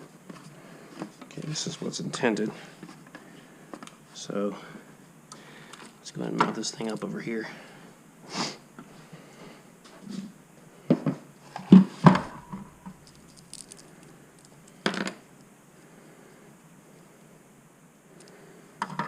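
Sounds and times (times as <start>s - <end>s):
car parts knocking and clunking: 11.6s - 13.7s.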